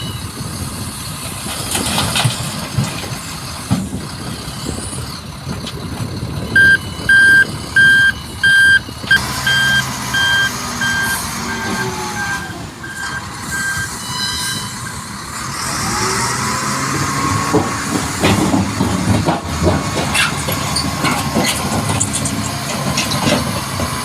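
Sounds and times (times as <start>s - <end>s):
truck engine running: 0.0s - 14.0s
truck reversing alarm beeping: 6.5s - 15.2s.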